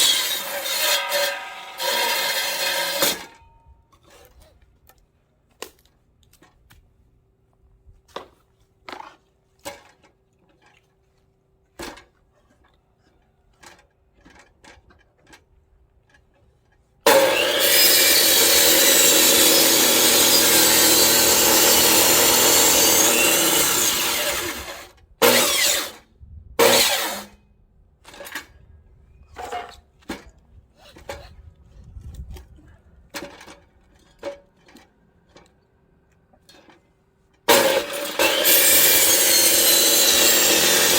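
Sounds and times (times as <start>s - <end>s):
electric chainsaw cutting log: 0.0s - 3.3s, 17.1s - 26.0s, 26.6s - 27.4s, 37.5s - 40.9s.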